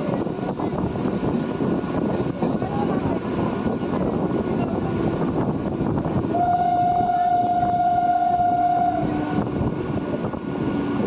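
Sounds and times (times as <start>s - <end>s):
train rumbling on track: 0.0s - 11.0s
train horn blast: 6.3s - 9.5s.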